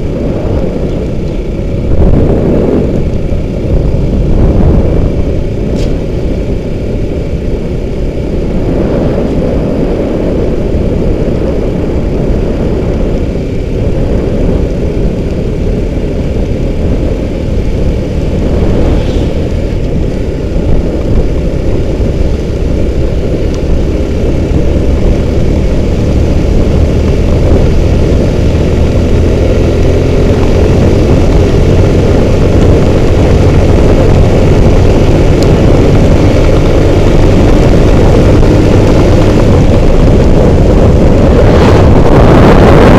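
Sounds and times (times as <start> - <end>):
road rumble: 0.0 - 42.9
wind rush on microphone: 0.0 - 42.9.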